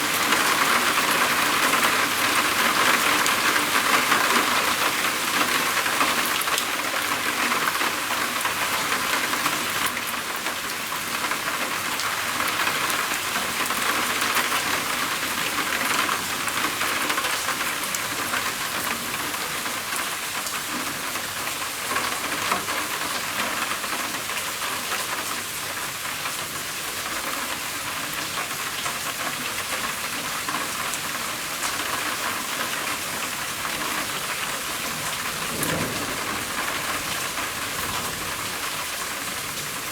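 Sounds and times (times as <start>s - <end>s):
rain pattering on a roof: 0.0s - 39.9s.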